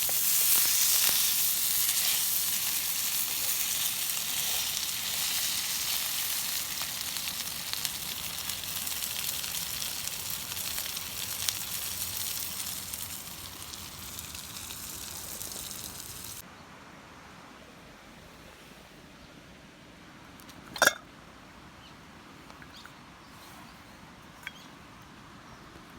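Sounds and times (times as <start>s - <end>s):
food sizzling in a pan: 0.0s - 16.4s.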